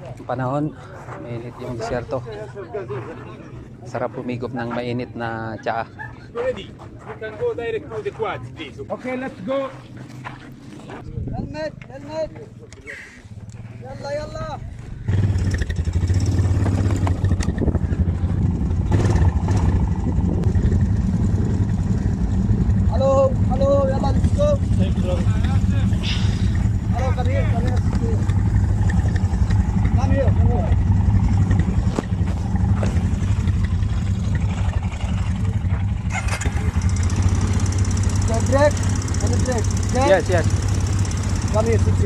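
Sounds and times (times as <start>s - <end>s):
quad bike engine idling: 13.4s - 42.0s.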